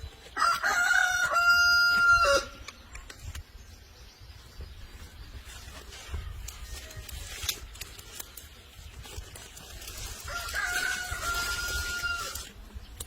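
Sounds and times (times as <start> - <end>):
rooster crowing: 0.4 - 2.6, 10.2 - 12.5.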